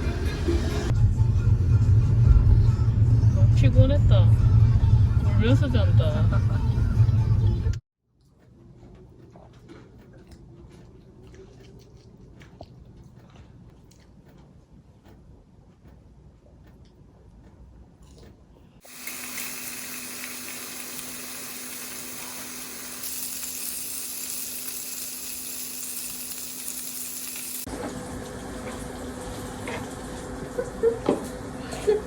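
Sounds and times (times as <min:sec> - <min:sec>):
steady hiss: 0:18.8 - 0:27.7.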